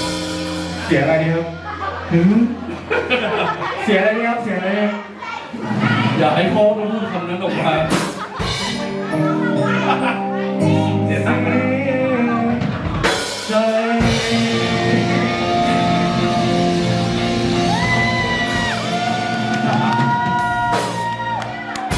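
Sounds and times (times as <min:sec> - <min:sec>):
live rock band playing: 0:00.0 - 0:02.1, 0:07.9 - 0:21.9.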